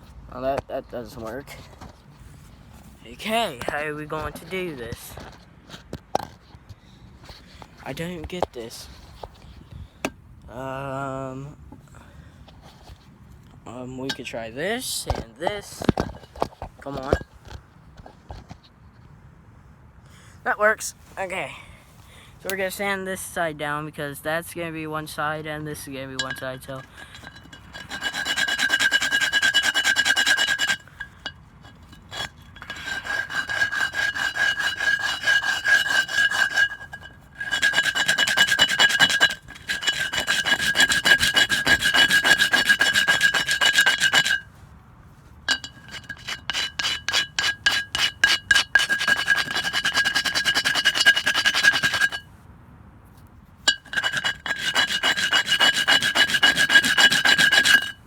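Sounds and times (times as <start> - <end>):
hand file rasping: 26.2 - 44.5, 45.5 - 52.2, 53.7 - 58.0
steady ringing tone: 45.5 - 52.2.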